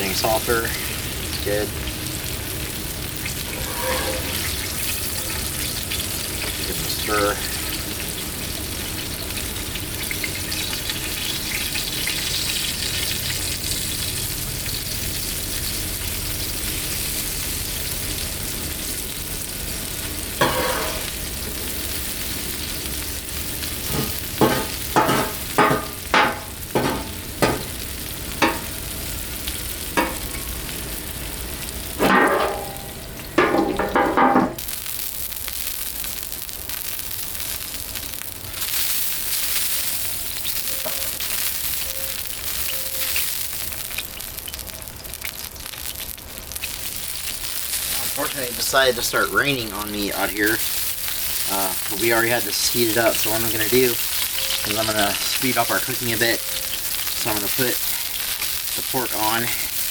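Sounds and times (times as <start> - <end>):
vegetables sizzling on a griddle: 0.0 - 59.9
utensil scraping griddle: 3.2 - 5.6, 20.4 - 21.2, 23.8 - 28.8, 30.0 - 30.7, 31.9 - 34.6.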